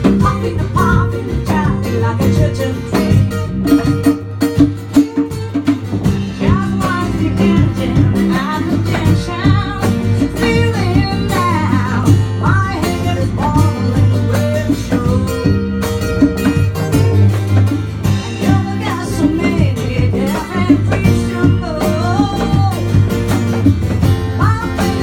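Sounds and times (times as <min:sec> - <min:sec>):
person singing: 0:00.0 - 0:04.1, 0:04.9 - 0:23.4, 0:24.4 - 0:25.0
bass line: 0:00.0 - 0:25.0
hand-struck percussion: 0:00.0 - 0:25.0
strummed acoustic guitar: 0:00.0 - 0:25.0.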